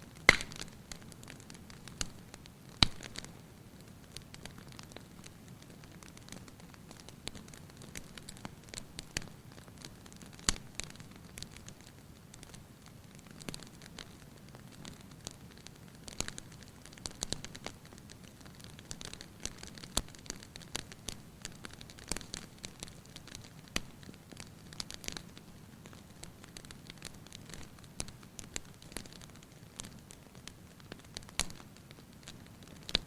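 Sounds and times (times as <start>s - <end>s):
fire crackling and popping: 0.0s - 33.0s.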